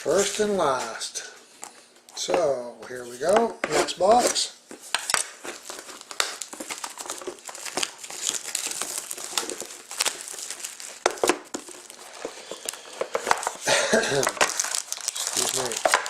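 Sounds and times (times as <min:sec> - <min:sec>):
plastic shrink-wrap tearing and crinkling: 0:05.1 - 0:16.0.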